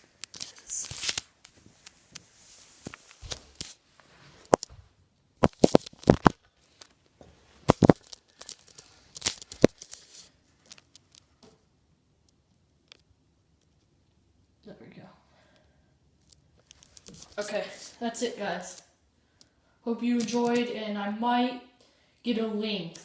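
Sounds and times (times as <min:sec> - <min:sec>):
rustling: 0:00.0 - 0:11.5, 0:16.2 - 0:18.0.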